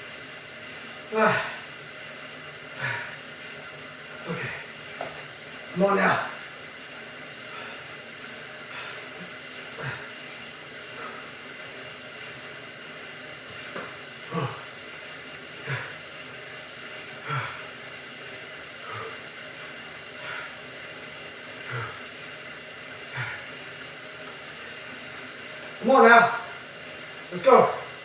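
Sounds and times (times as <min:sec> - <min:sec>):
steady hiss: 0:00.0 - 0:28.0
man breathing heavily: 0:02.6 - 0:05.4, 0:07.3 - 0:12.4, 0:13.6 - 0:25.5.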